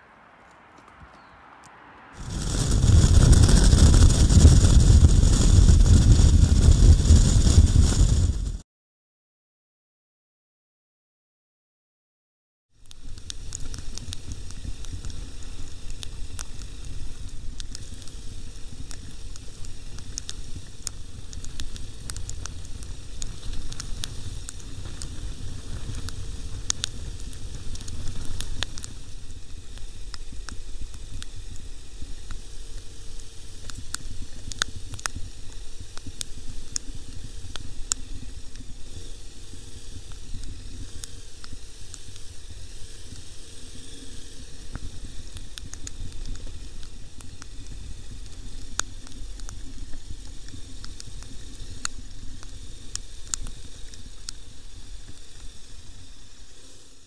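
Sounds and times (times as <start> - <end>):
sharp crackles: 0.0 - 8.6, 12.8 - 56.9
wind buffeting microphone: 0.9 - 8.6.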